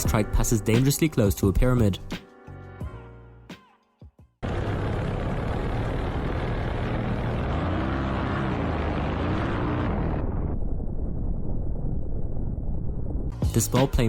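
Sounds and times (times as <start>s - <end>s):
ultralight aircraft engine: 4.4s - 11.0s.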